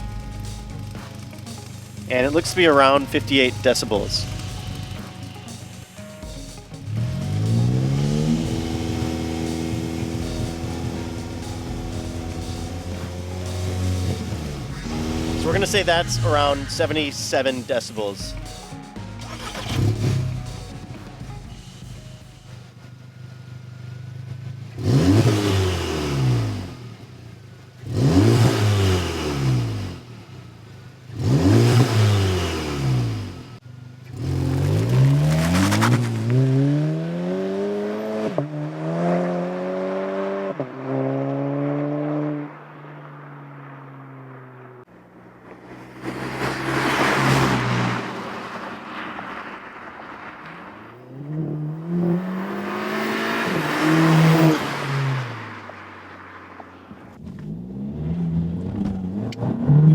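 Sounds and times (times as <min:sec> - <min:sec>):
car engine revving: 0:00.0 - 0:59.9
car accelerating through gears: 0:06.6 - 0:18.3, 0:19.2 - 0:20.8, 0:22.8 - 0:27.2, 0:27.8 - 0:30.5, 0:31.1 - 0:59.9.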